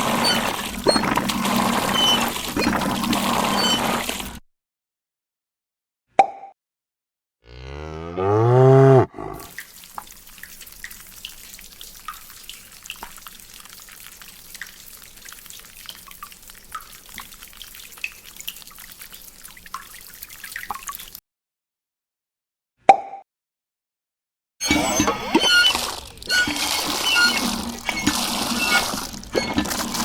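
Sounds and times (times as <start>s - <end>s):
water dripping and ticking: 0.0s - 4.4s, 9.4s - 21.2s, 24.6s - 30.0s
cow mooing: 7.4s - 9.5s.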